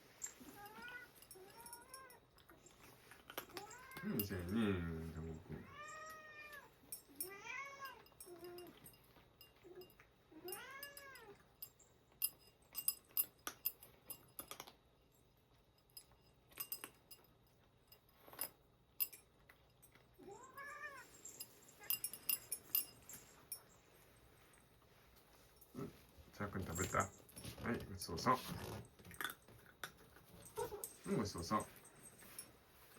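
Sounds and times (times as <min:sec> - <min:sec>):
cats eating crunching: 0:00.0 - 0:05.6, 0:08.0 - 0:32.9
cat meowing: 0:05.6 - 0:08.0, 0:20.2 - 0:21.1.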